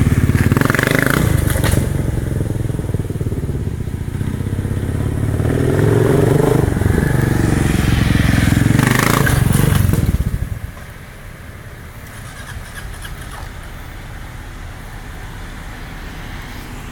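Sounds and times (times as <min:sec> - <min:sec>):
motorcycle engine running hard: 0:00.0 - 0:10.8.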